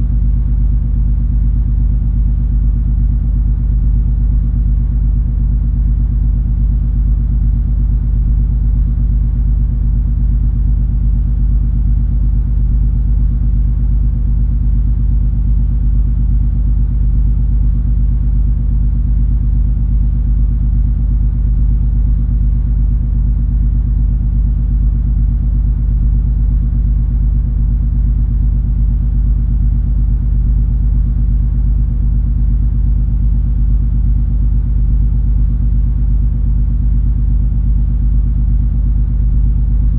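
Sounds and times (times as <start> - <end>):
steady hum tones: 38.2 - 39.9.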